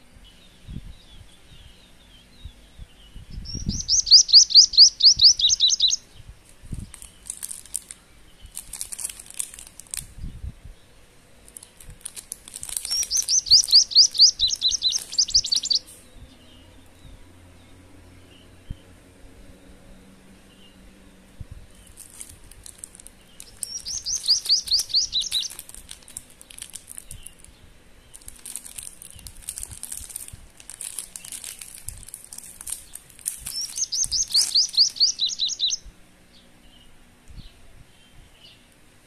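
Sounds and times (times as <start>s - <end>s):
bird singing: 0.0s - 8.7s, 12.6s - 30.0s, 30.8s - 38.7s
plastic wrapper crinkling: 6.4s - 10.2s, 11.4s - 13.9s, 14.6s - 15.9s, 21.7s - 35.0s.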